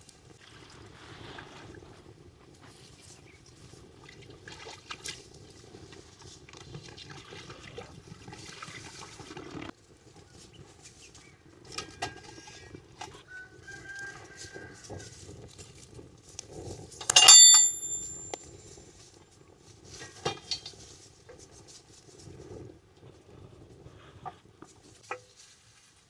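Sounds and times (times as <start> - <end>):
clicks and knocks: 17.0 - 18.4.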